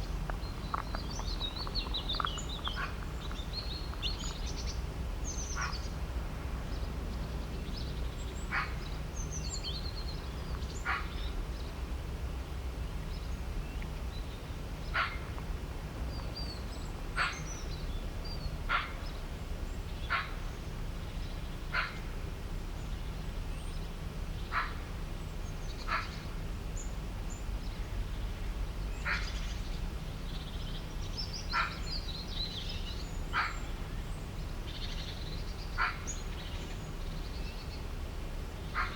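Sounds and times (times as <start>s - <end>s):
small birds chirping: 0.0s - 6.0s, 22.8s - 38.9s
steady low rumble: 0.0s - 31.2s.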